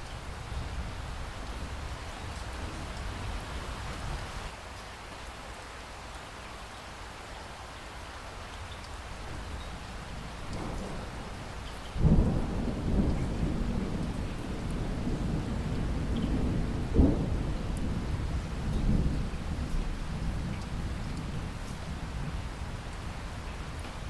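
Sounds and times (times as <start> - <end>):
steady rainfall: 0.0 - 24.0
thunder rumbling: 9.3 - 24.0.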